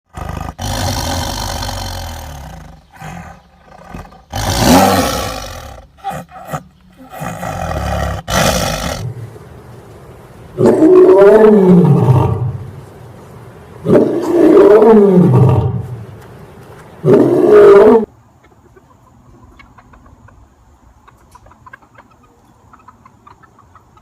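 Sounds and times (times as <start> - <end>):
big cat roaring and growling: 0.1 - 9.2, 10.6 - 12.6, 13.8 - 16.0, 17.0 - 18.1.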